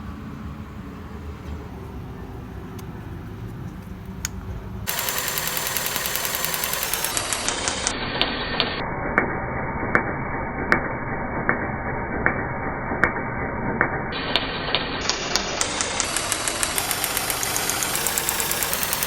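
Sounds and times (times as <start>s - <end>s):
engine ticking: 1.6s - 8.7s, 14.2s - 19.0s
car engine idling: 15.1s - 19.0s.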